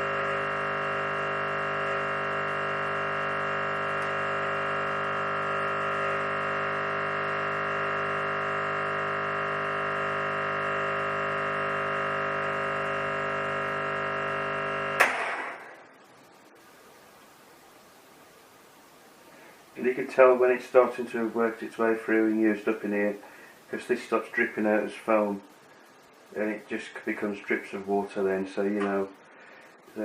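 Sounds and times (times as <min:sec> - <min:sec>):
espresso machine pump humming: 0:00.0 - 0:15.0.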